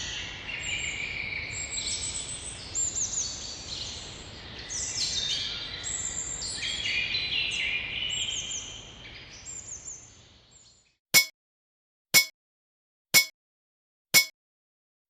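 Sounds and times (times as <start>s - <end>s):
birds singing: 0.0s - 10.9s
timer alarm metal pang: 14.2s - 14.4s.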